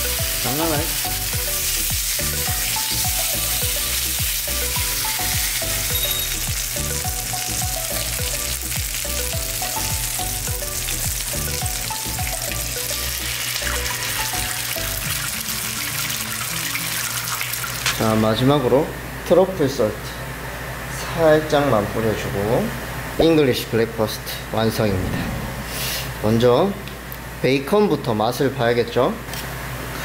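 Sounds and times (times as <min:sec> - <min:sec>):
background music with steady beat: 0:00.0 - 0:15.3
meat and vegetables sizzling in skillet: 0:00.0 - 0:18.0.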